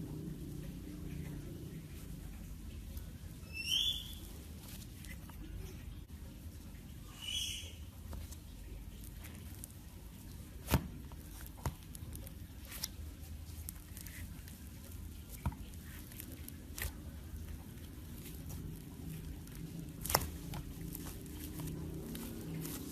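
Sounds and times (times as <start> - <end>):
slime squishing with pops: 8.1 - 22.9.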